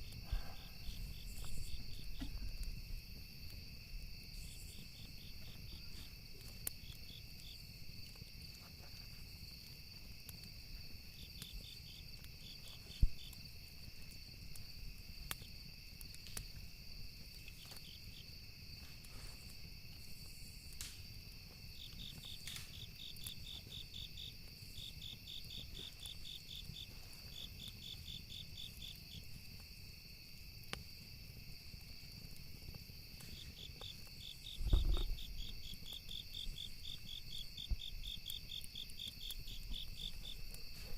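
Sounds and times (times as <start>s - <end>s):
burning wood crackling: 0.0s - 40.9s
crickets chirping: 0.0s - 40.9s
insect drone: 0.0s - 40.9s
low thump: 34.6s - 35.2s.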